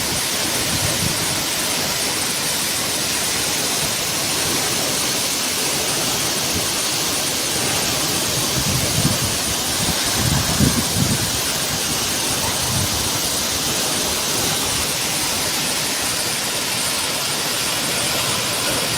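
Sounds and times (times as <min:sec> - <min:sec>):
torrential rain pouring: 0:00.0 - 0:18.9.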